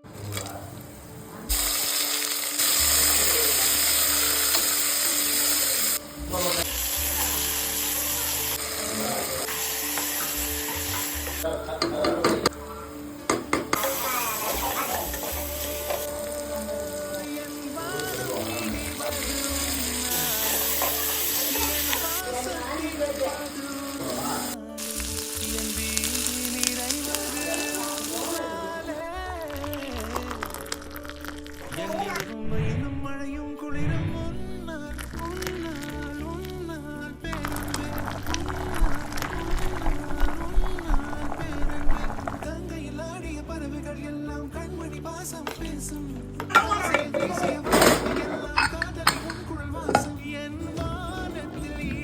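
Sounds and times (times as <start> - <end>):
background music: 0.0 - 52.0
food sizzling in hot oil: 1.5 - 11.5, 13.6 - 28.4.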